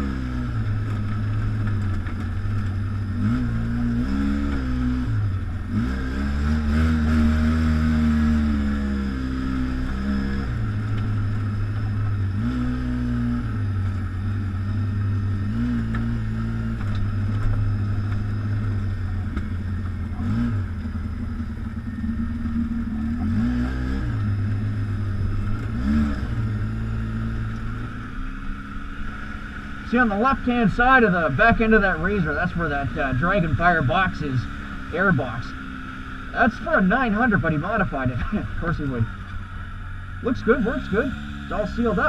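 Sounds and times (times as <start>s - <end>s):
atv engine running: 0.0s - 42.0s.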